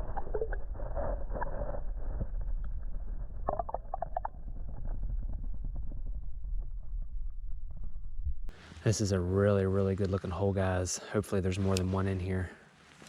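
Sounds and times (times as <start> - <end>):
wind rumbling on microphone: 0.0 - 8.7.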